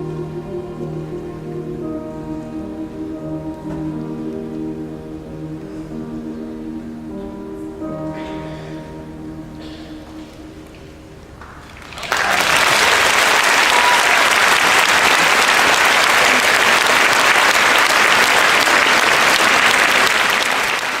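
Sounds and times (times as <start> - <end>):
choir singing: 0.0 - 11.4
audience applauding: 11.4 - 21.0.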